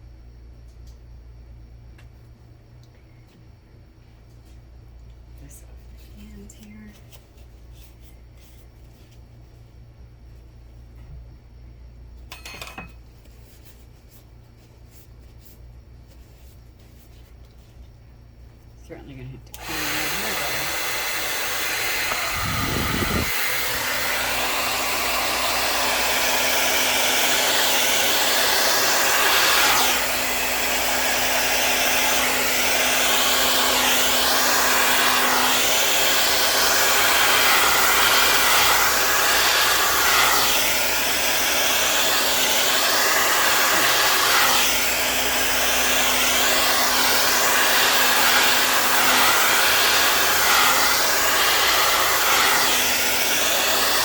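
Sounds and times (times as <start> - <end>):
hair dryer blowing air: 19.6 - 54.0.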